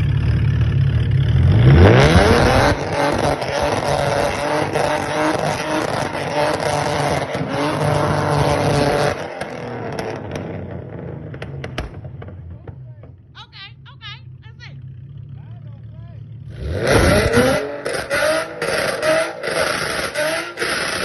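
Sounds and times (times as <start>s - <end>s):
car engine revving hard: 1.3s - 11.9s, 16.4s - 21.0s.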